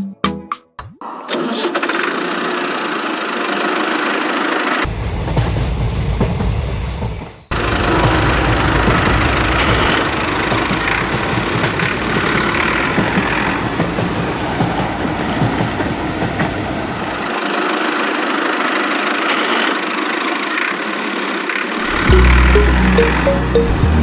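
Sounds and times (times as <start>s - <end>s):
small motor running with clicking rattle: 18.4s - 21.9s.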